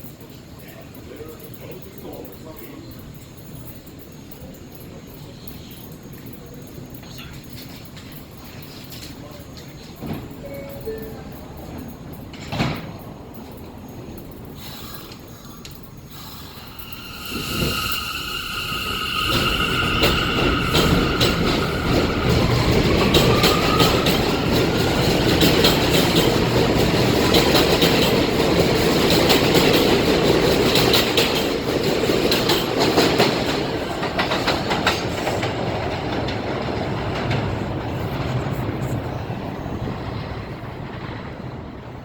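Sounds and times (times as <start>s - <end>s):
wheel squeal: 16.1s - 25.5s
wheels clattering over rail joints: 19.1s - 42.0s.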